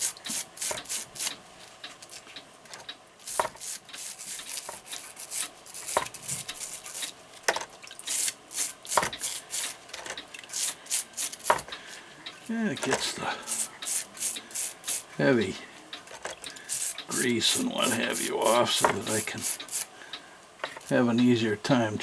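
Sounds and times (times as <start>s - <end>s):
brush scrubbing metal parts: 0.0s - 1.4s, 12.9s - 15.1s, 16.7s - 19.9s.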